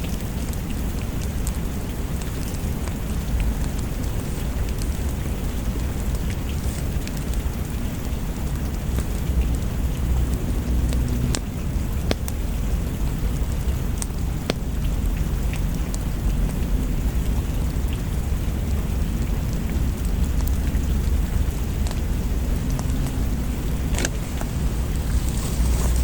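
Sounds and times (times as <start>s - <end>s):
steady rain: 0.0s - 26.0s
fireplace crackles: 0.6s - 16.4s, 20.2s - 26.0s.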